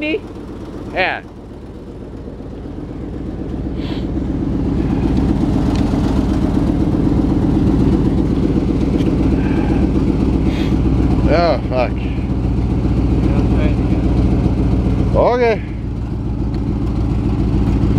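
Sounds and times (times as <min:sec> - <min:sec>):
pickup truck engine idling: 0:00.0 - 0:17.9.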